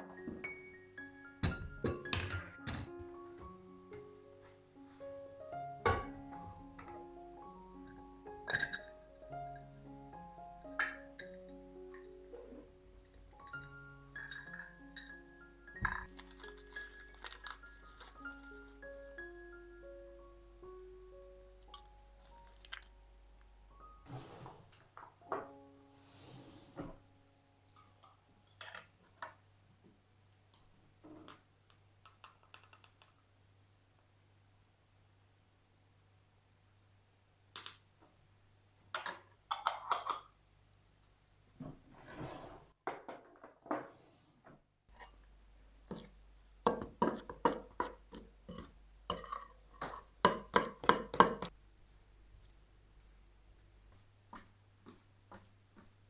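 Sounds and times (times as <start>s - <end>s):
dishes and utensils clinking: 1.4s - 3.0s, 5.8s - 6.9s, 8.5s - 9.7s, 10.6s - 18.9s, 39.0s - 40.4s, 44.9s - 45.2s, 45.8s - 51.5s.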